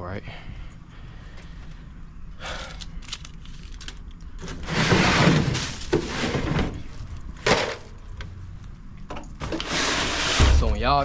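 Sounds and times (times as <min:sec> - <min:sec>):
loud rattling scrape: 0:04.4 - 0:06.8, 0:09.5 - 0:10.8.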